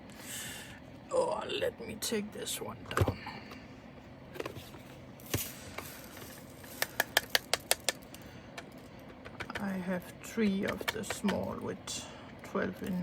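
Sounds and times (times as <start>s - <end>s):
sharp plastic clicks: 6.8s - 9.7s.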